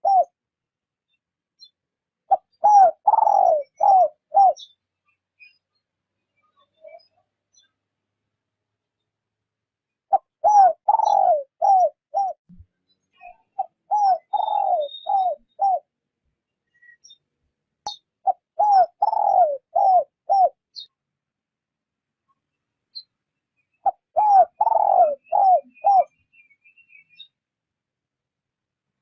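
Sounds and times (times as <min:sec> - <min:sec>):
dove cooing: 0:00.0 - 0:00.4, 0:02.3 - 0:04.7, 0:10.1 - 0:12.4, 0:13.6 - 0:15.9, 0:18.2 - 0:20.6, 0:23.8 - 0:26.1.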